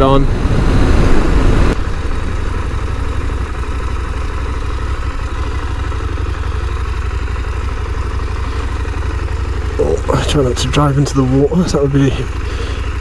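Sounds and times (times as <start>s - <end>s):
wind buffeting microphone: 0.0s - 5.3s
motorcycle engine running: 0.0s - 13.0s.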